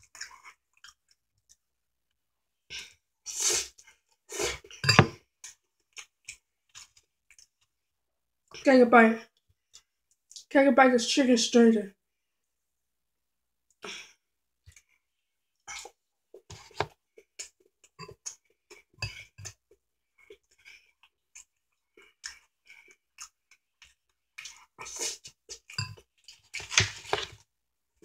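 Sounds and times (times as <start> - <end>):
person chewing with mouth smacks: 15.7 - 26.8.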